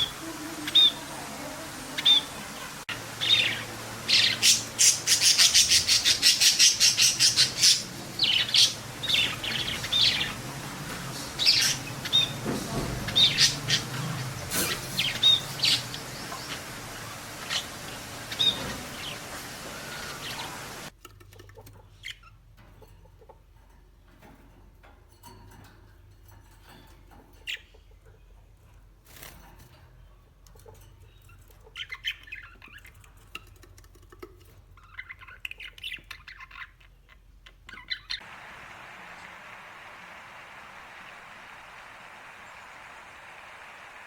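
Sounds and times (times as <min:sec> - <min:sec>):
birds twittering: 0:00.0 - 0:20.9, 0:30.6 - 0:33.7, 0:34.6 - 0:44.0
small birds chirping and squawking: 0:00.0 - 0:23.3, 0:30.5 - 0:40.3.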